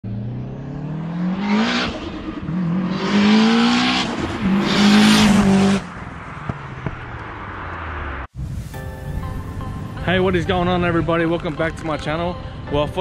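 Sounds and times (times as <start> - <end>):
car engine accelerating hard: 0.0 - 8.3.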